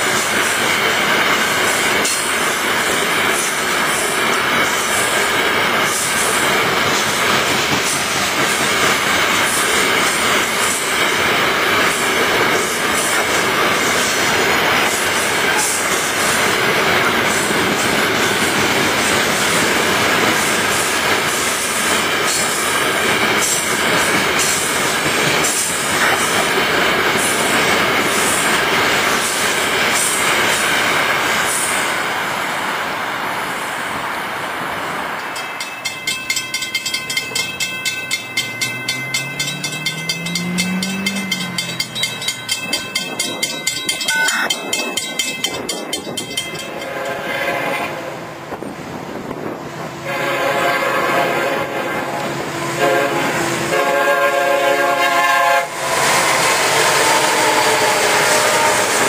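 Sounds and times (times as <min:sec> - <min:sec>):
freight car wheels rumbling on rail: 0:00.0 - 0:34.0, 0:34.6 - 0:59.0
grade-crossing bell ringing: 0:35.3 - 0:47.2
low rising and falling tone: 0:38.1 - 0:43.0.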